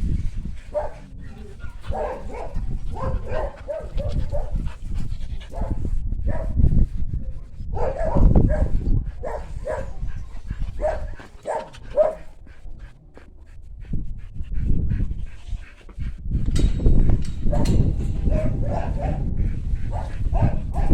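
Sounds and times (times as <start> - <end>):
dog whining barks and yips: 10.8 - 12.2.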